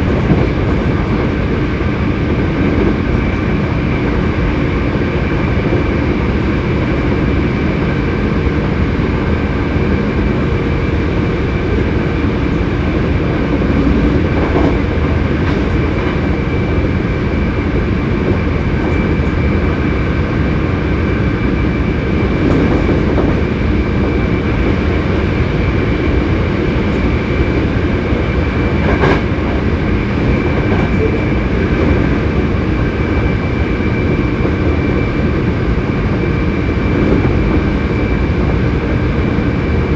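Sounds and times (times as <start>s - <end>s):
rail-joint clicks: 0.0s - 1.8s, 9.3s - 19.7s, 22.2s - 25.4s, 26.2s - 33.1s
high whine of traction motors: 0.0s - 39.9s
train wheels rumbling on rails: 0.0s - 39.9s.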